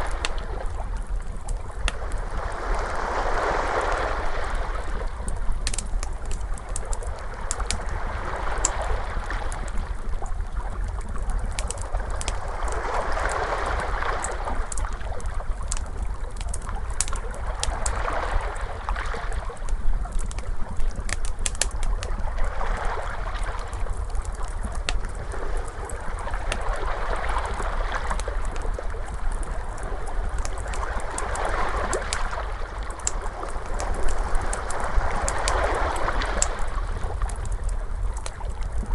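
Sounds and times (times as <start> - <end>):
wood fire crackling: 0.0 - 2.8, 4.8 - 38.9
ocean waves washing in: 1.9 - 5.3, 12.0 - 15.1, 25.3 - 37.7.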